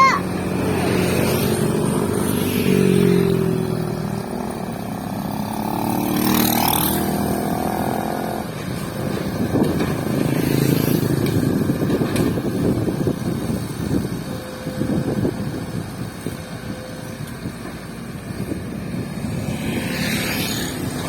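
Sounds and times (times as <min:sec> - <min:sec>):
excavator diesel engine running: 0:07.6 - 0:21.0.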